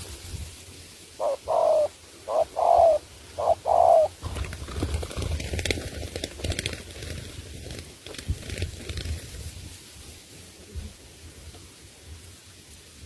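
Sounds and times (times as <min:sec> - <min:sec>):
dove cooing: 0:01.2 - 0:05.4.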